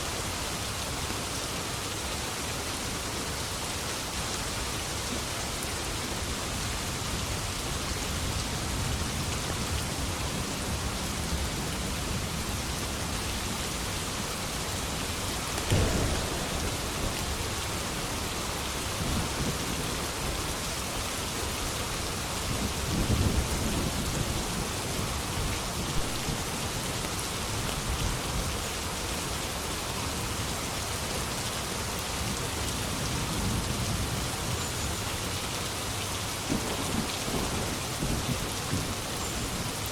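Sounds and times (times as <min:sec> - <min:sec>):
heavy rain: 0:00.0 - 0:39.9
low rolling thunder rumble: 0:08.2 - 0:21.5, 0:36.5 - 0:39.8
thunder crack: 0:15.5 - 0:20.5.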